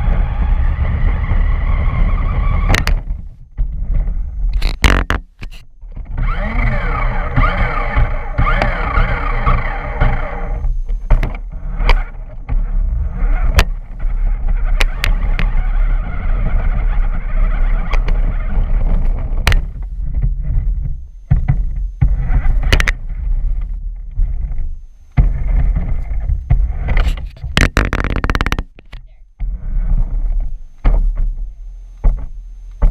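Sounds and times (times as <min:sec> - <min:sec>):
remote-control truck rumble: 0:00.0 - 0:31.5
knocks and clatters of bouncing: 0:25.2 - 0:29.0, 0:32.0 - 0:32.9.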